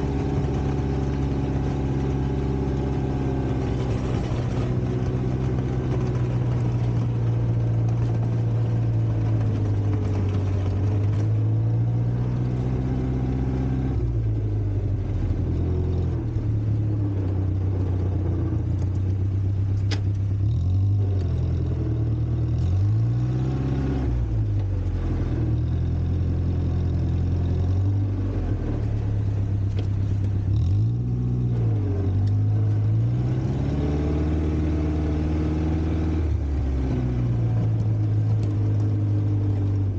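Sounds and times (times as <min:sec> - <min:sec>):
tractor engine revving: 0:00.0 - 0:19.1.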